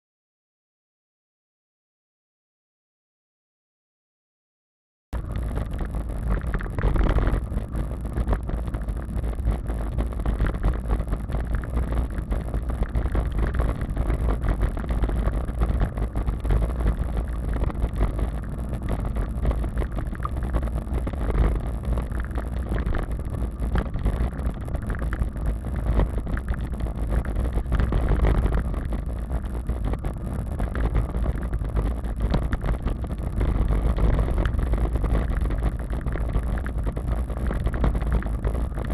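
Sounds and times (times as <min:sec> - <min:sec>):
wind rumbling on microphone: 0:05.2 - 0:38.9.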